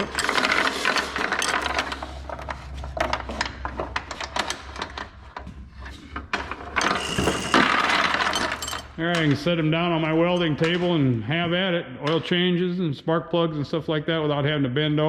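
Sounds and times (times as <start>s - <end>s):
chain hoist clicking and rattling: 0.0s - 9.0s.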